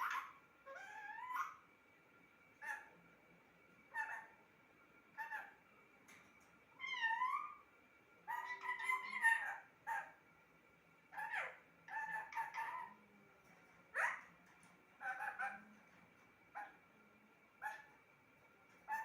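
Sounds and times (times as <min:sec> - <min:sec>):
parrot squawking and chirping: 0:00.0 - 0:01.7, 0:02.6 - 0:03.0, 0:03.9 - 0:04.4, 0:05.1 - 0:05.6, 0:06.8 - 0:10.2, 0:11.1 - 0:13.0, 0:13.9 - 0:15.8, 0:16.5 - 0:16.8, 0:17.6 - 0:18.0.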